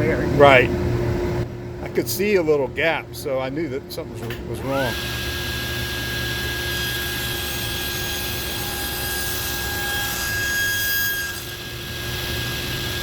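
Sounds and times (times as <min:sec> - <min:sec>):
power tool motor whining: 0:04.7 - 0:13.0.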